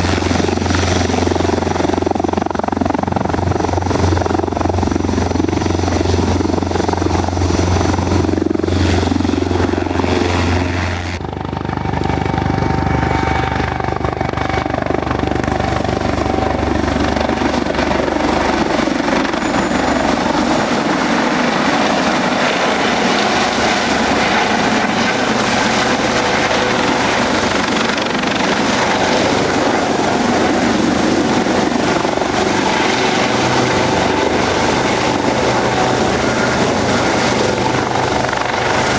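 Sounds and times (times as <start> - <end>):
helicopter rotor beat: 0.0 - 38.9
high turbine whine: 6.5 - 38.9.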